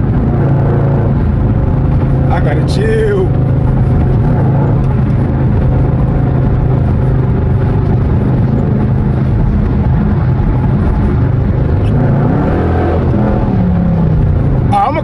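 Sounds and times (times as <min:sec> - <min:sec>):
car engine exhaust drone: 0:00.0 - 0:15.0.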